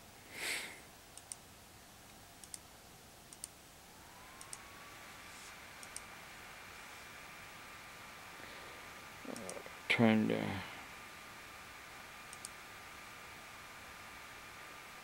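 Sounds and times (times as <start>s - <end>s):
faint steady whine: 0.0s - 15.0s
sharp device clicks: 2.4s - 2.6s, 12.3s - 12.6s.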